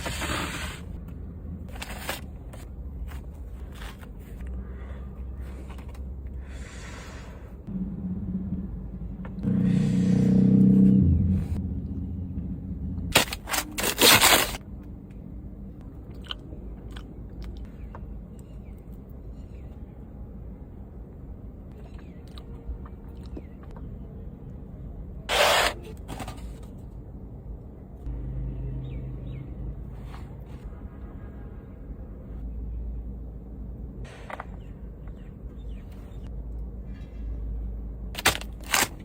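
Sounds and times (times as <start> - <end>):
low steady hum: 7.6 - 9.5
sharp crunching or rustling: 13.1 - 14.6, 38.2 - 39.0
person crunching and chewing: 16.0 - 17.6.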